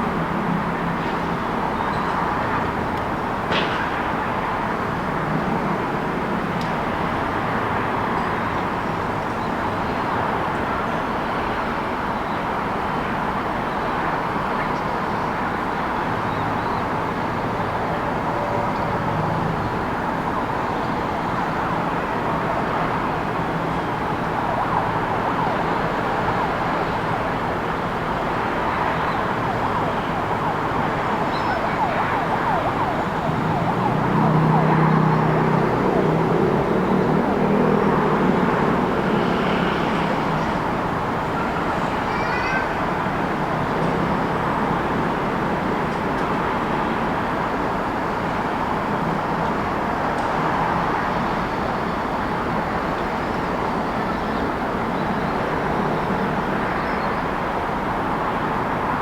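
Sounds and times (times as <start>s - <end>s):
traffic noise: 0.0s - 59.0s
vehicle passing: 31.5s - 40.4s.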